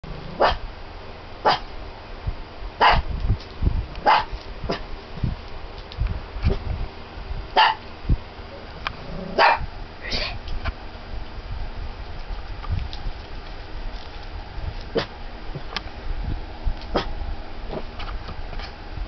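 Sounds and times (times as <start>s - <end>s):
dog barking: 0.4s - 0.6s, 1.4s - 1.7s, 2.8s - 3.0s, 4.0s - 4.3s, 7.6s - 7.8s, 9.3s - 9.7s.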